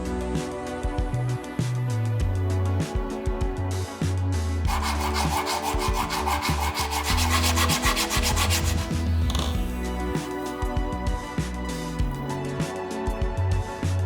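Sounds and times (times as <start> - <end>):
background music: 0.0 - 14.0
rubbing strokes on leather: 4.7 - 9.4.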